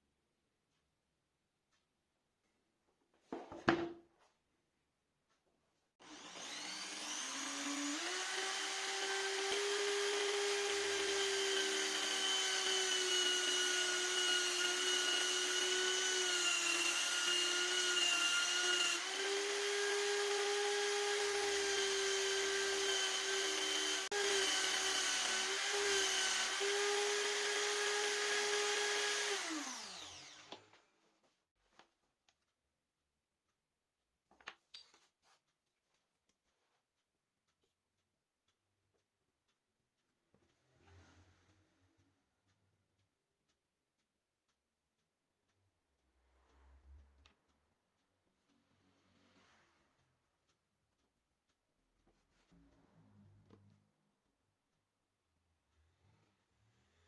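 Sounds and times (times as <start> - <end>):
power tool motor whining: 6.0 - 30.7.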